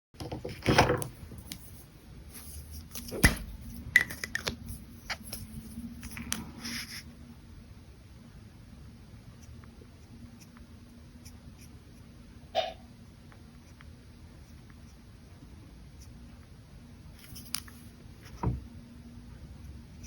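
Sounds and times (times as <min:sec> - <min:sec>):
pen and paper clicks and rustles: 0:01.4 - 0:07.0, 0:17.2 - 0:18.4.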